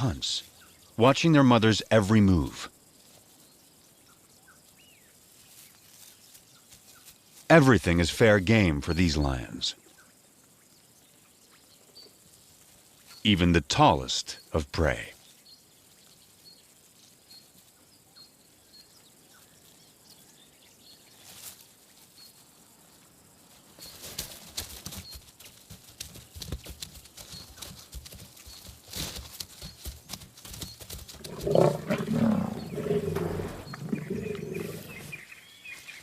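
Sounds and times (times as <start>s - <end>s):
scuffling and crackling: 21.1s - 36.0s
lions growling: 31.2s - 35.3s.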